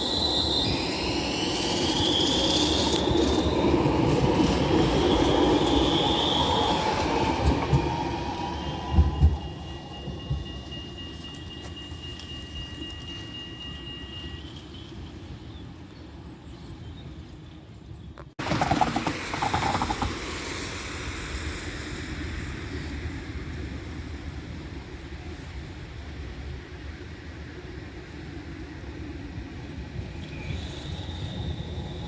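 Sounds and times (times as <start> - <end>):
tram wheels squealing: 0.0 - 15.5, 18.4 - 23.5, 29.7 - 32.0
tram rumble: 0.0 - 32.0.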